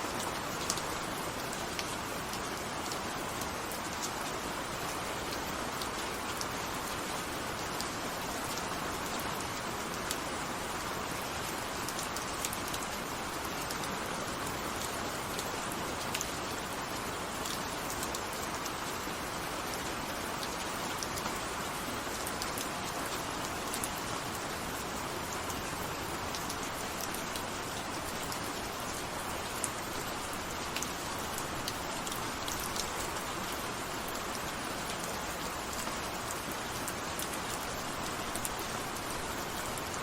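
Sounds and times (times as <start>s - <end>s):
steady rain: 0.0s - 40.0s.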